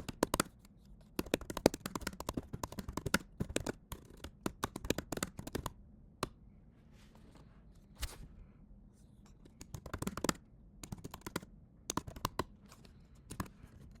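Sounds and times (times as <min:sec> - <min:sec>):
computer keyboard typing: 0:00.0 - 0:05.8, 0:09.5 - 0:14.0.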